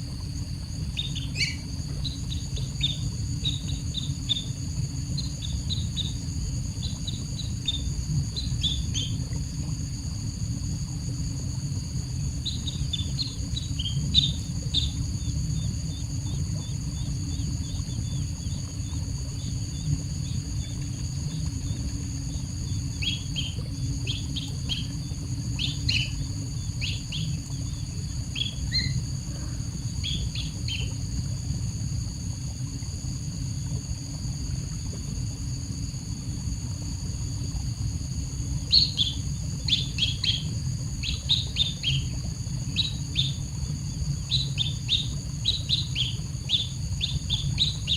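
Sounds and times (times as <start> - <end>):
high insect drone: 0.0 - 47.9
small bird chirping: 1.0 - 4.6, 6.8 - 9.2, 12.4 - 15.0, 22.9 - 24.9, 25.6 - 26.2, 26.8 - 29.0, 30.0 - 30.9, 38.7 - 42.1, 42.8 - 43.4, 44.3 - 47.9.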